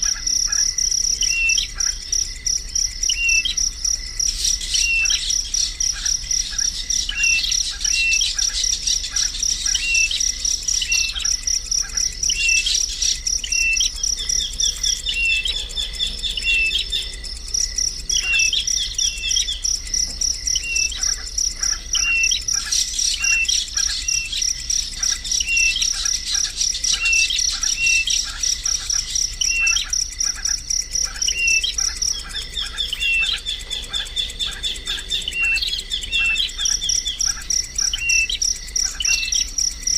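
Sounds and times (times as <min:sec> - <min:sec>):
high-pitched insect trill: 0:00.0 - 0:39.9.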